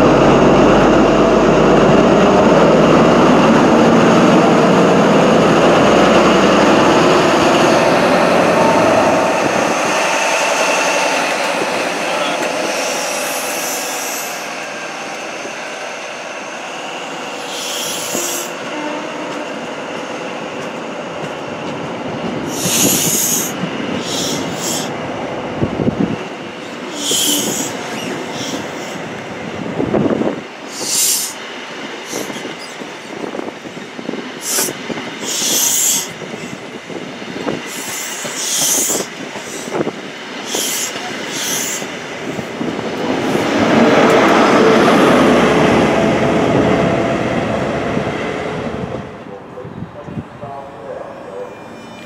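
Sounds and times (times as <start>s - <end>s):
train rail rumble: 0.0s - 52.0s
heavy clunks over track: 42.4s - 44.5s.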